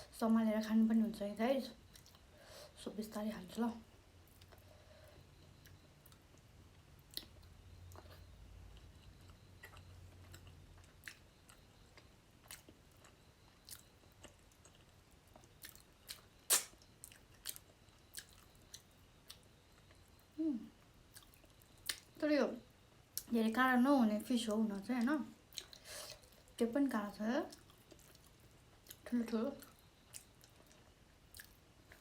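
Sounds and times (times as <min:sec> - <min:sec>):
quiet chewing: 0:01.8 - 0:02.4, 0:04.3 - 0:22.2, 0:24.8 - 0:26.6, 0:27.5 - 0:32.0
wet clicks and lip smacks: 0:15.6 - 0:17.6.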